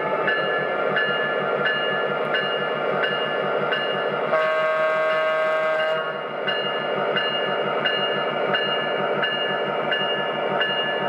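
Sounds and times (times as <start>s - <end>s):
locomotive bell ringing: 0.2s - 4.2s, 5.8s - 11.0s
train horn blast: 4.3s - 6.2s.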